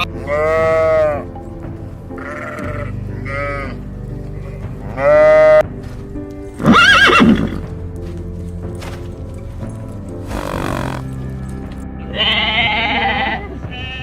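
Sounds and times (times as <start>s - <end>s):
farm animal calls: 0.0s - 1.4s, 2.1s - 5.6s, 10.2s - 11.2s, 12.0s - 14.0s
background music: 0.0s - 14.0s.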